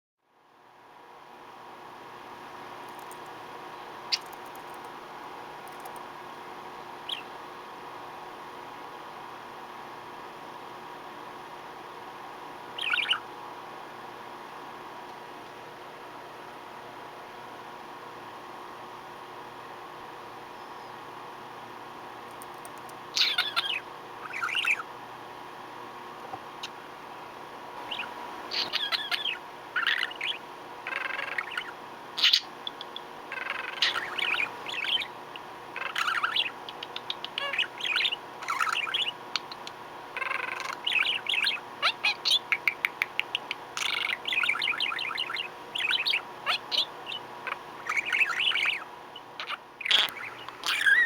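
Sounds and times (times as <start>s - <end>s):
budgerigar chirping and warbling: 4.1s - 4.4s, 7.1s - 7.3s, 12.8s - 13.3s, 23.1s - 24.9s, 27.8s - 51.0s.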